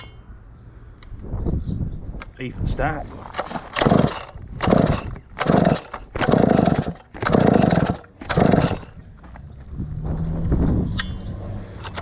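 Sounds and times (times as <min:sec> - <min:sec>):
chainsaw engine revving: 0:03.4 - 0:09.0.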